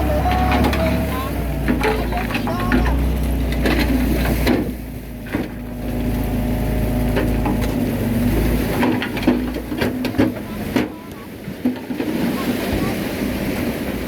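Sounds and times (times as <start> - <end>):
clanks and knocks: 0.0 - 5.8, 7.1 - 12.3
bulldozer diesel engine: 0.0 - 14.0.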